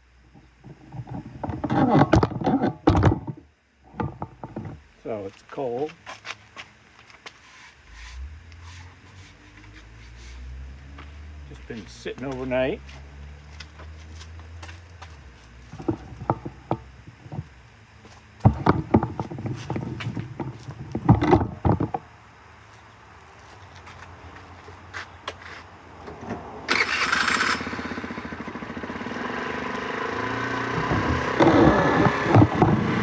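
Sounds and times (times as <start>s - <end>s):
scooter engine cranking: 0.6s - 4.8s, 15.7s - 17.5s, 18.4s - 22.0s, 26.7s - 33.0s
knocks and clatter: 15.7s - 17.6s, 18.4s - 22.0s, 30.7s - 33.0s
scooter engine idling fast: 26.7s - 33.0s.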